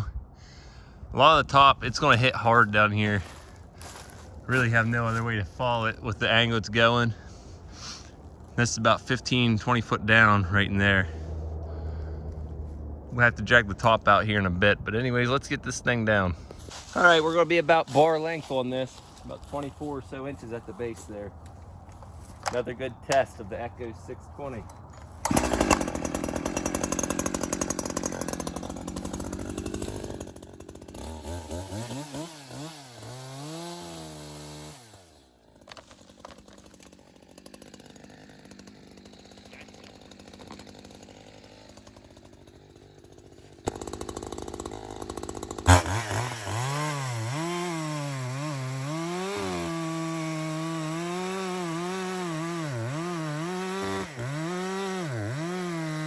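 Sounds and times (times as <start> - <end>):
chainsaw cutting and revving: 1.9 - 7.2, 24.4 - 56.0.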